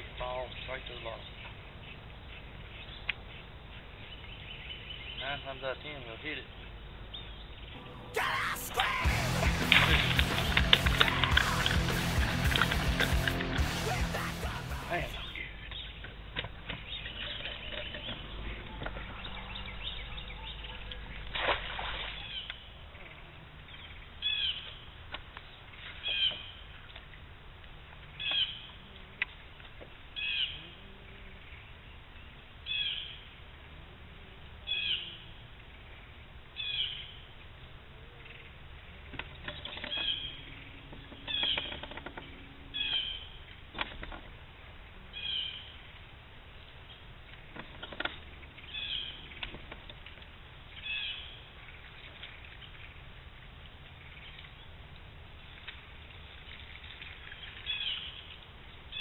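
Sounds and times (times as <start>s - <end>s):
bird chirpy call: 7.1s - 12.1s, 39.6s - 43.4s.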